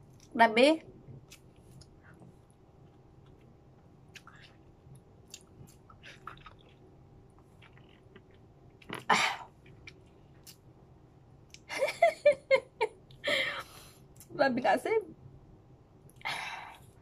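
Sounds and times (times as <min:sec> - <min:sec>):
wet chewing: 0:01.2 - 0:10.6.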